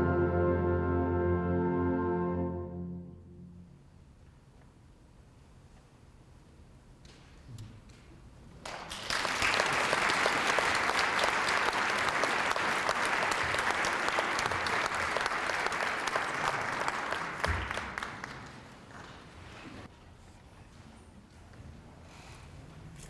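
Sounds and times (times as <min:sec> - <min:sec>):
audience applauding: 0:08.7 - 0:19.9.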